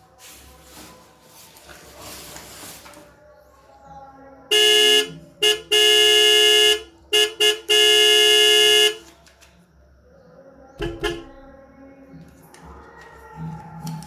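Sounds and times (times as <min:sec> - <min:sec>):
vehicle horn honking: 0:04.5 - 0:09.1, 0:10.8 - 0:11.4.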